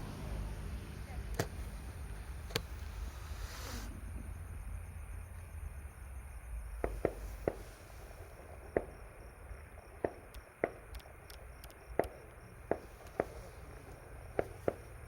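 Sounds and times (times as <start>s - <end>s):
distant firework bangs: 6.7s - 15.0s.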